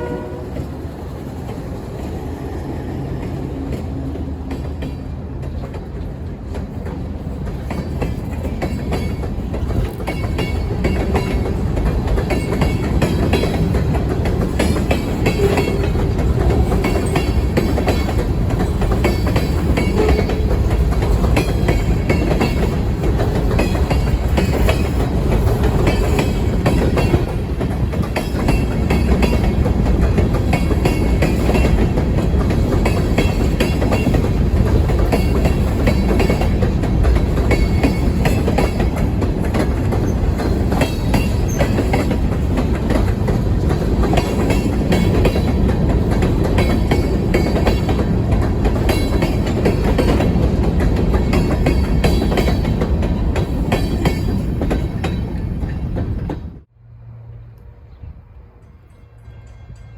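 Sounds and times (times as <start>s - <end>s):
train wheels clacking on rail joints: 0.0s - 56.7s
freight train rumbling: 0.0s - 59.9s.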